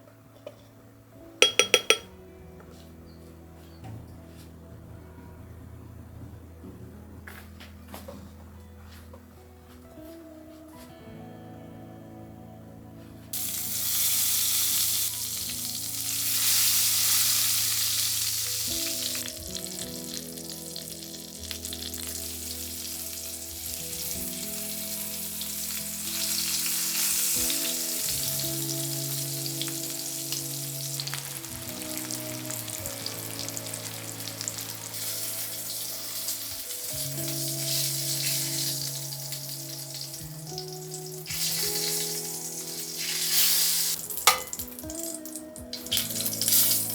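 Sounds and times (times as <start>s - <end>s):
soft background music: 0.0s - 46.9s
food sizzling in hot oil: 13.4s - 46.9s.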